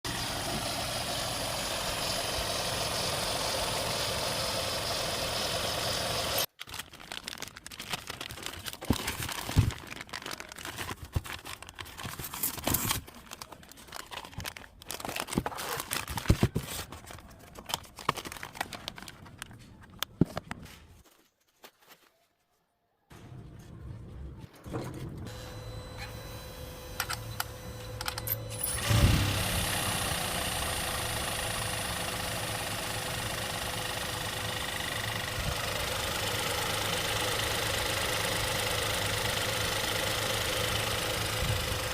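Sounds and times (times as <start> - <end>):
car engine running: 0.1 - 6.5, 25.3 - 41.9.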